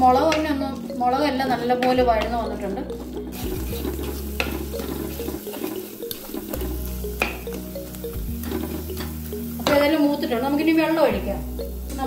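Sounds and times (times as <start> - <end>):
wooden spatula scraping pot: 0.0 - 7.5, 8.3 - 9.8
masala sizzling in oil: 0.0 - 12.0
soft background music: 0.0 - 12.0.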